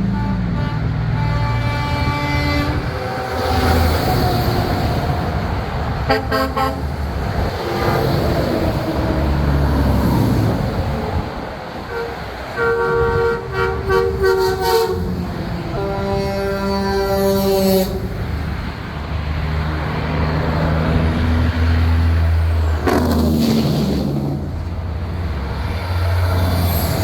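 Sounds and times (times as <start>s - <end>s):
truck air horns blasting: 0.0s - 4.6s, 6.0s - 9.6s, 11.8s - 18.3s, 22.7s - 24.5s
diesel engines rumbling: 0.0s - 27.0s.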